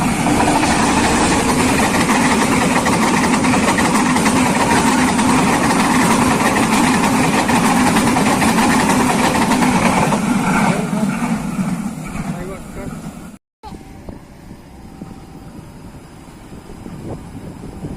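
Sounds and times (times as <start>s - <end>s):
large vehicle engine running: 0.0s - 4.8s.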